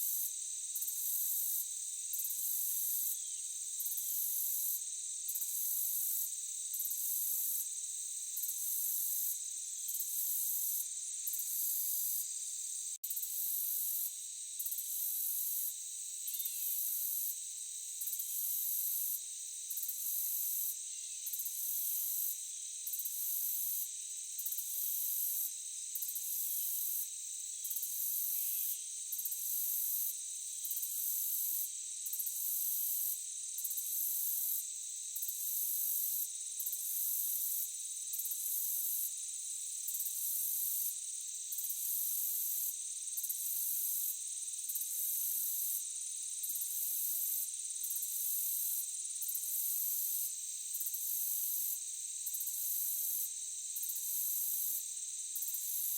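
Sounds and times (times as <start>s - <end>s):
insects chirping: 0.0s - 55.9s.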